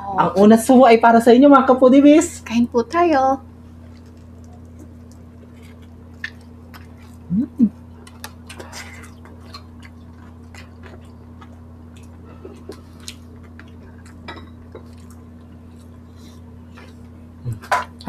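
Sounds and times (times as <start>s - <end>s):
low electrical hum: 0.0s - 18.0s
close chewing: 3.8s - 17.2s.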